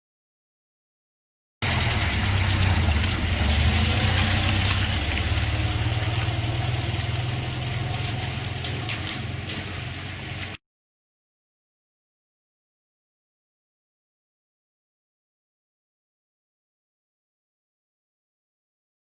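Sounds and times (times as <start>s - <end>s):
engine humming: 1.6s - 10.6s.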